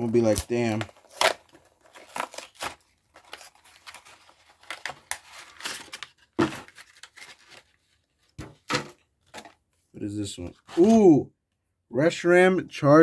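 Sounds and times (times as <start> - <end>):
wrappers crinkling and tearing: 0.0 - 7.8.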